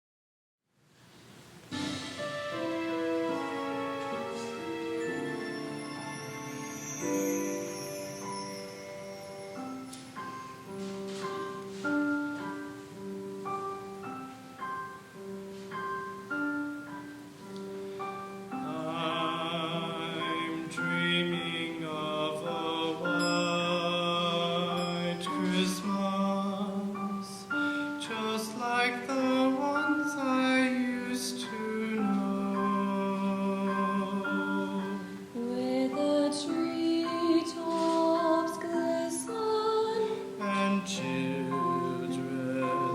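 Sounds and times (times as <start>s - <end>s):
instrumental accompaniment: 1.6s - 42.9s
choir singing: 1.7s - 8.5s, 18.6s - 27.4s, 28.0s - 42.9s.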